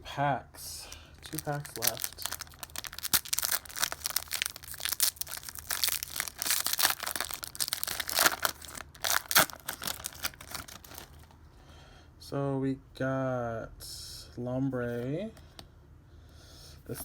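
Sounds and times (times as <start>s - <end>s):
foil wrapper tearing and crinkling: 1.2s - 11.3s.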